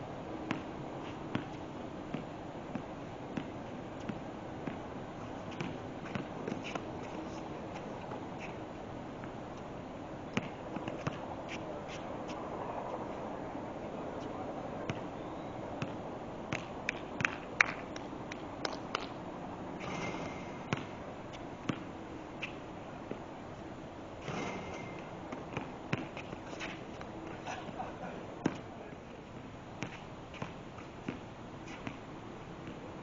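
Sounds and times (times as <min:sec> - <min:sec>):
players' feet on court: 0:00.4 - 0:13.5, 0:19.8 - 0:33.0
basketball bouncing: 0:19.8 - 0:21.0, 0:21.7 - 0:21.9, 0:24.2 - 0:26.3.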